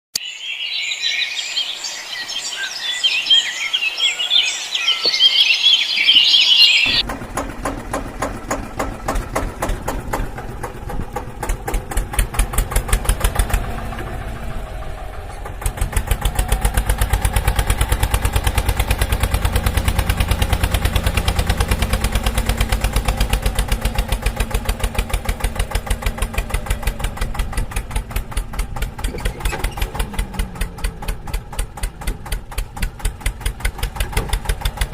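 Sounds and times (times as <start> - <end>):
birds chirping: 0.1 - 7.0
tractor engine running: 6.0 - 34.9.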